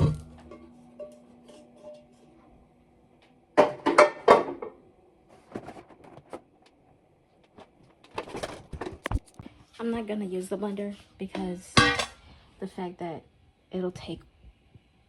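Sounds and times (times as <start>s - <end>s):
kitchen items clattering: 3.6s - 4.8s, 5.4s - 6.4s, 8.0s - 9.1s, 11.7s - 12.3s.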